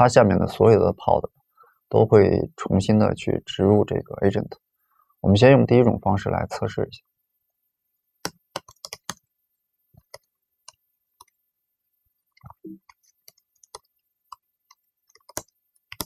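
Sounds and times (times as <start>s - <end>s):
computer keyboard keystrokes: 8.2s - 9.2s, 15.0s - 16.0s
mouse clicks: 8.2s - 9.2s, 12.6s - 16.0s.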